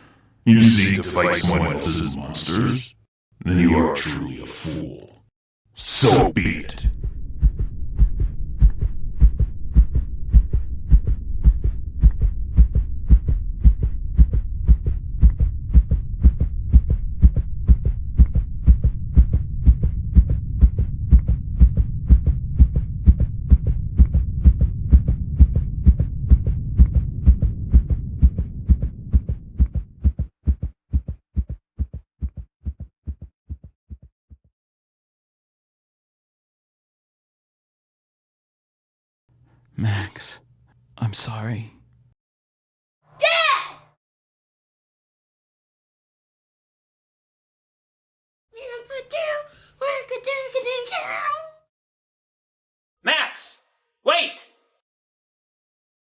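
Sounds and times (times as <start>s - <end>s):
heartbeat thuds: 6.5s - 34.1s.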